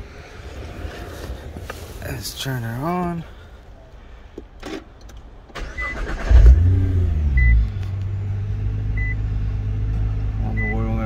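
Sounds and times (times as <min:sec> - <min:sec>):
car engine revving and idling: 0:05.9 - 0:11.0.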